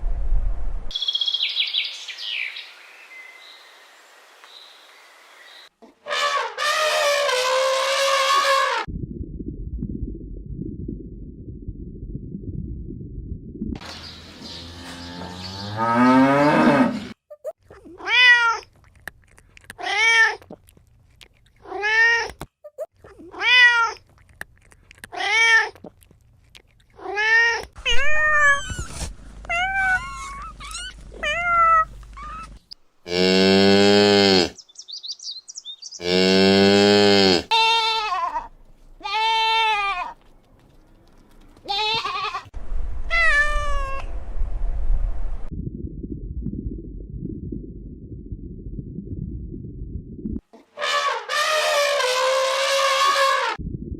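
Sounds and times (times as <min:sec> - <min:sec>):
cat meowing: 0:23.2 - 0:24.0, 0:27.0 - 0:32.6, 0:43.1 - 0:44.1.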